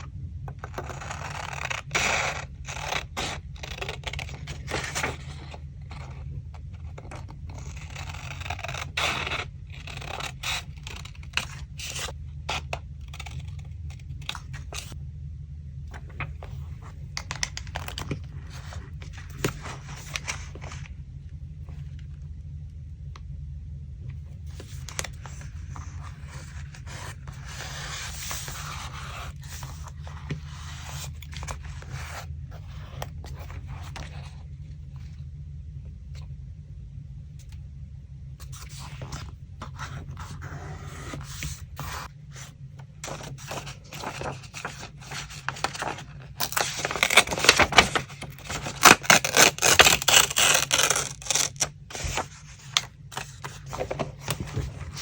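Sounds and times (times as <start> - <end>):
steady low hum: 0.0 - 55.0
paper rustling and crackling: 0.7 - 12.2, 15.9 - 20.9, 24.5 - 34.4, 38.4 - 55.0.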